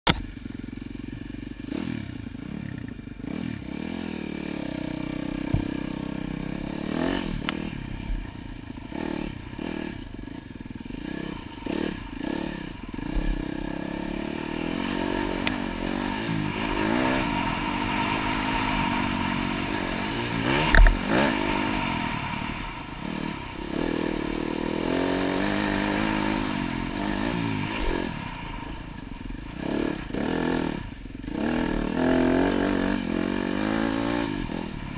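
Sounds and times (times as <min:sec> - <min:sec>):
dirt bike engine revving: 0:00.2 - 0:34.9
loud thump: 0:05.4 - 0:06.0.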